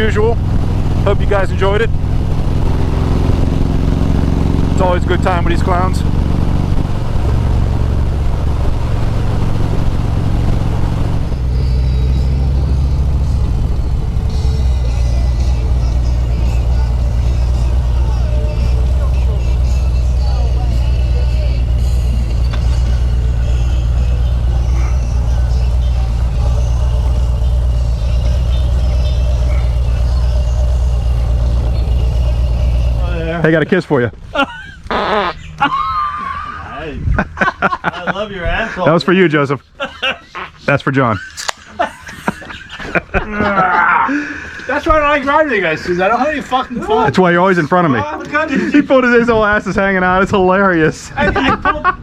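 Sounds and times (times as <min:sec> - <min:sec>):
motorcycle engine running: 0:00.0 - 0:33.7
wind and road noise: 0:00.0 - 0:52.0.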